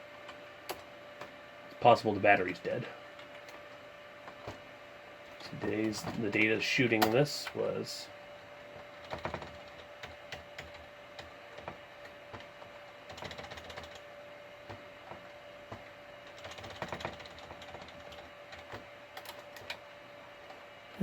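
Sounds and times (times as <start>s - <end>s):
computer keyboard keystrokes: 9.0s - 14.0s, 16.3s - 19.8s.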